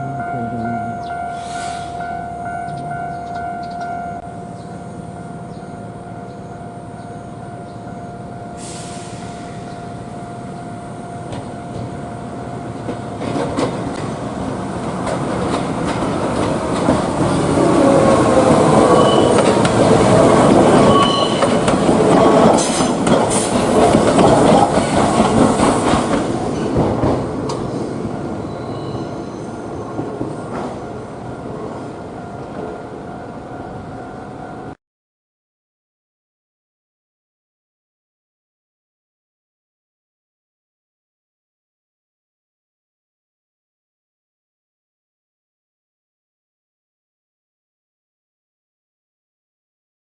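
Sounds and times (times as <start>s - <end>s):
train wheels on rails: 12.6s - 33.0s.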